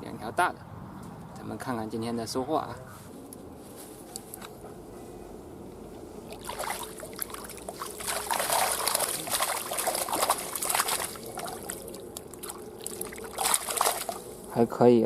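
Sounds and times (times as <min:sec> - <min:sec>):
water dripping and sloshing: 0:06.3 - 0:14.6
water streaming and splashing: 0:06.3 - 0:14.6.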